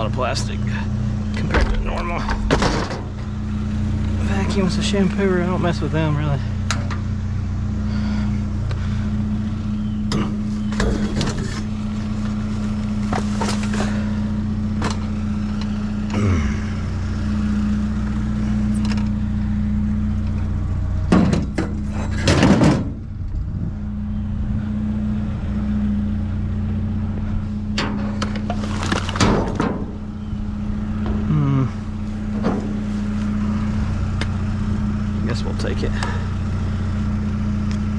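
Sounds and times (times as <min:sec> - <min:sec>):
engine idling: 0:00.0 - 0:37.9
rattling: 0:01.2 - 0:05.0, 0:27.2 - 0:34.8.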